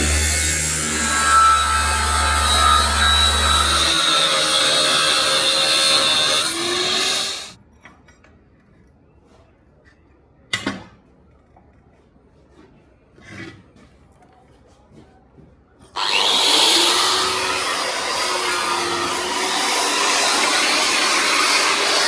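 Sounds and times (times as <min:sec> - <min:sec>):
power tool running: 0:00.0 - 0:07.6, 0:16.0 - 0:22.0.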